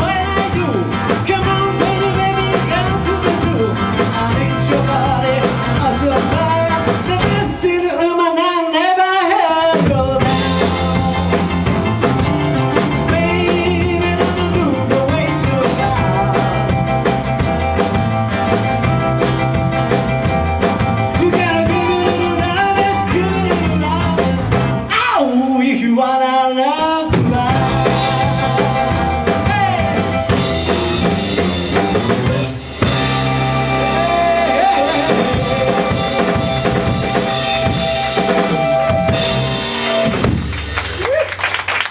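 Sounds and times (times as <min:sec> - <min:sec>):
drum kit: 0:00.0 - 0:08.2, 0:09.4 - 0:25.1, 0:26.8 - 0:41.9
person singing: 0:00.0 - 0:12.0, 0:12.7 - 0:17.3, 0:21.1 - 0:30.1, 0:33.6 - 0:37.2
rock and roll band playing: 0:00.0 - 0:41.9.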